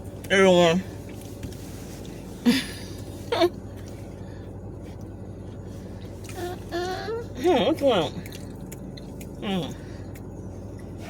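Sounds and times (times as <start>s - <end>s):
steady low hum: 0.0s - 11.0s
baby whimpering: 6.3s - 7.5s.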